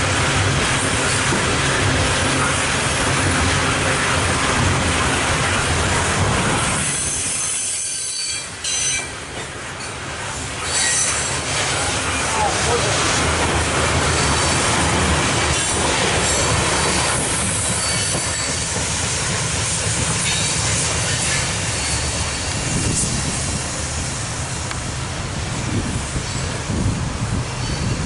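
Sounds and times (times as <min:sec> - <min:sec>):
freight train wheels rumbling: 0:00.0 - 0:28.0
high wheel squeals: 0:06.8 - 0:09.2, 0:10.6 - 0:11.4, 0:16.2 - 0:18.7, 0:20.2 - 0:23.3.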